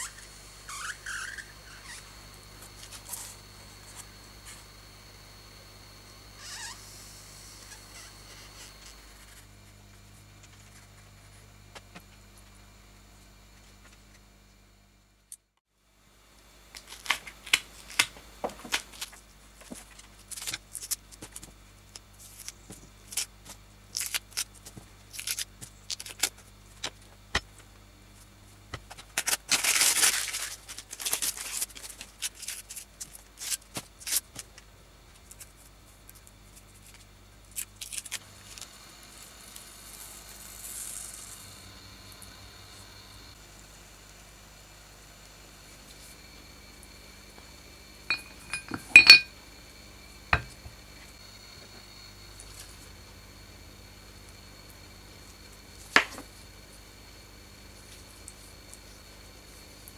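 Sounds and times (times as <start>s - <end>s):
small parts clicking and tapping: 48.1s - 49.3s.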